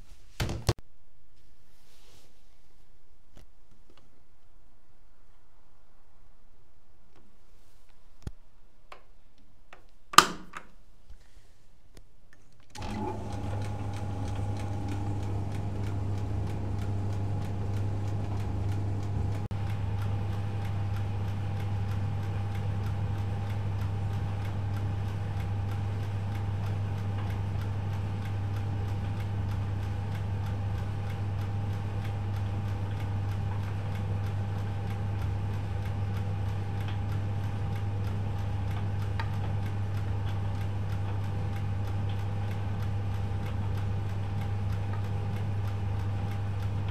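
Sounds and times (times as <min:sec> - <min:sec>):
washing machine humming: 0:12.7 - 0:46.9.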